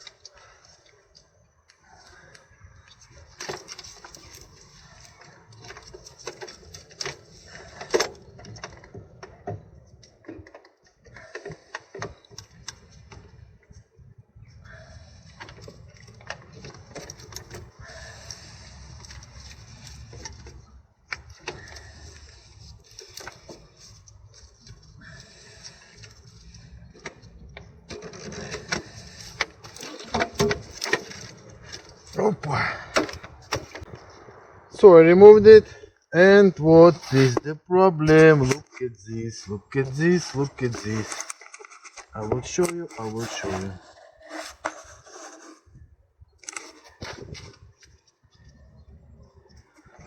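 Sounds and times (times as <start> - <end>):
hand tools and metal parts knocking: 0.0 - 13.8, 14.6 - 34.2.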